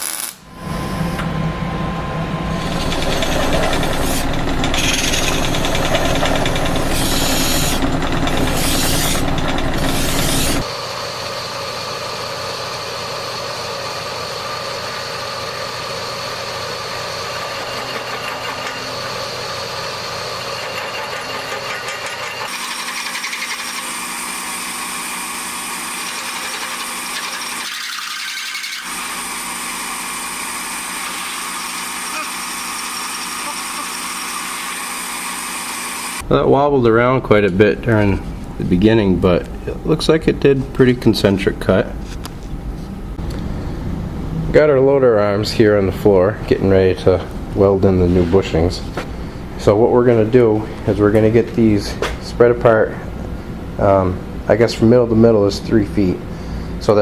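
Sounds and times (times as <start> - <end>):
power drill grinding through steel: 0.0 - 1.2, 2.4 - 10.7, 14.6 - 36.2.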